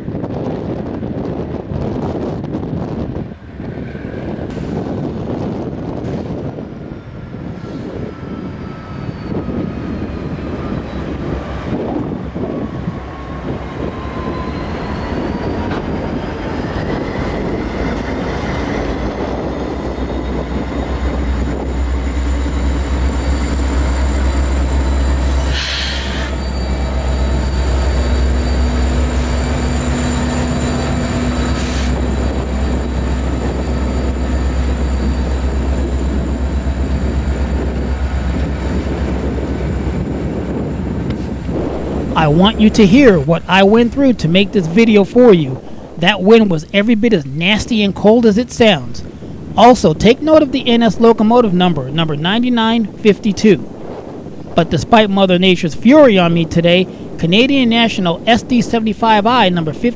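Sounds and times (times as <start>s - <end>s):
diesel locomotive engine rumble: 0.0s - 59.9s
wind buffeting microphone: 0.0s - 59.9s
high wheel squeal: 7.4s - 37.7s
steel wheels on rail: 7.4s - 42.2s
short hissing bursts: 25.5s - 26.3s.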